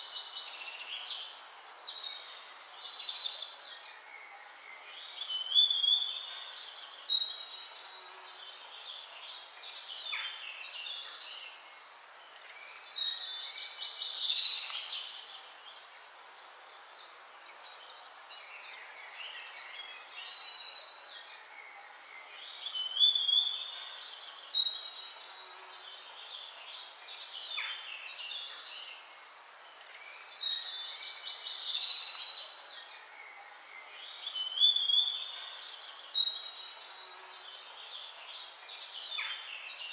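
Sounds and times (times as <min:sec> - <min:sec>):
faint steady hiss: 0:00.0 - 0:39.9
songbirds singing: 0:00.0 - 0:39.9.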